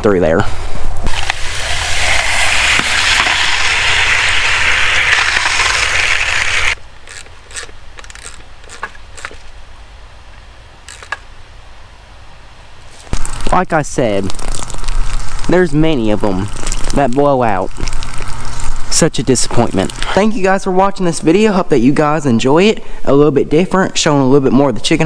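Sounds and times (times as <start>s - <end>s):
water hissing through pipe: 1.0s - 6.8s.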